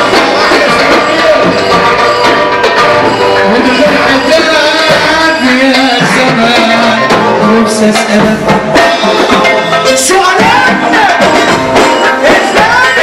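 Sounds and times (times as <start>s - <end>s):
person singing: 0.0s - 2.4s, 3.0s - 13.0s
wavering melody line: 0.0s - 8.0s
steady percussion strokes: 0.0s - 13.0s.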